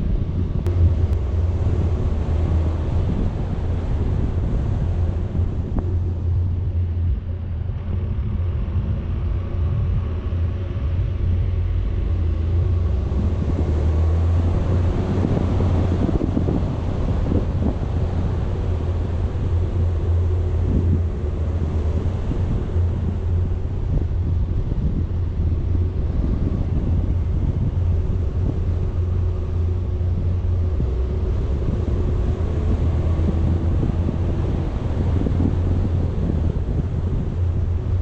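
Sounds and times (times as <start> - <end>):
vehicle engine and road rumble: 0.0 - 38.0
wind buffeting microphone: 0.0 - 38.0.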